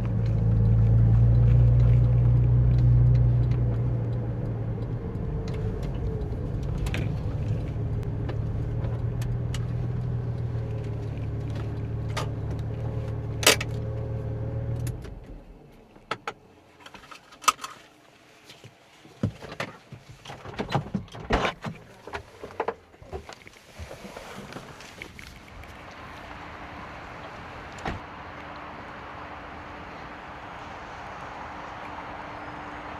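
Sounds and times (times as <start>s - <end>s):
car engine running: 0.0s - 16.4s, 25.6s - 32.9s.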